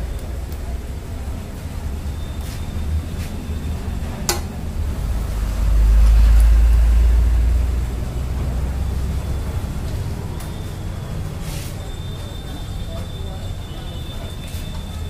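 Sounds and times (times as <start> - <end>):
frying in oil: 13.5 - 15.0.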